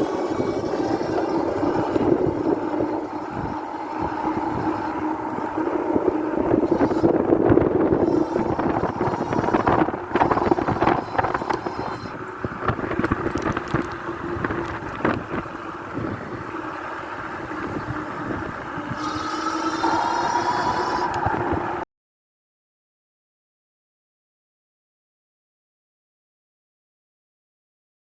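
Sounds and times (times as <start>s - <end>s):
electric motor whine: 0.0s - 21.8s
wind noise on microphone: 0.0s - 21.9s
knocks and rattles: 12.5s - 15.5s.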